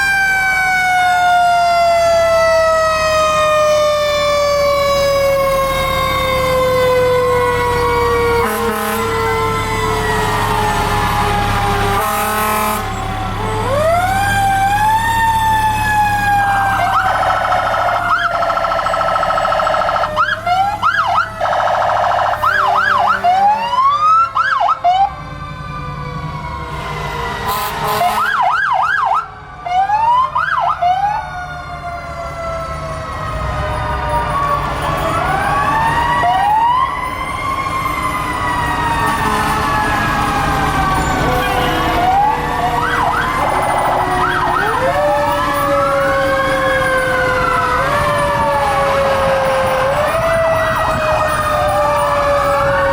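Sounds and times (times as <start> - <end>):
fire truck sirens wailing: 0.0 - 52.9
low truck rumble: 0.0 - 52.9
air horn blasts: 8.4 - 9.4, 11.9 - 13.1, 22.2 - 23.8, 26.7 - 28.5, 41.0 - 42.5.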